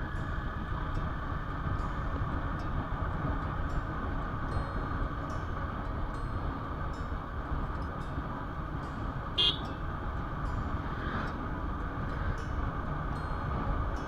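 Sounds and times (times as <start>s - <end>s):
road and wind noise: 0.0s - 14.0s
vehicle horn toot: 9.4s - 9.8s.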